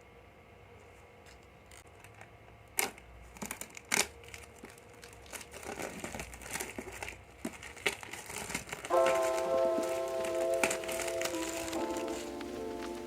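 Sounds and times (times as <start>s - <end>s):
paper rustling and crinkling: 3.3s - 13.0s.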